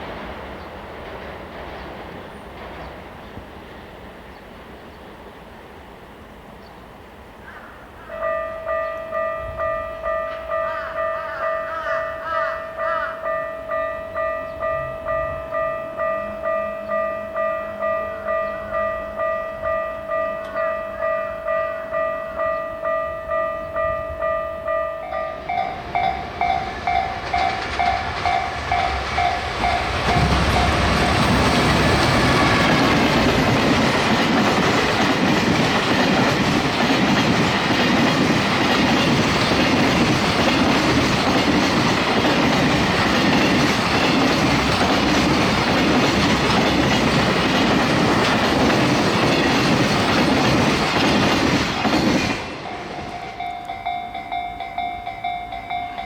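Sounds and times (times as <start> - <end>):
train wheels clattering over rail joints: 0.0 - 3.8, 25.6 - 53.5
level-crossing warning bell ringing: 8.1 - 56.0.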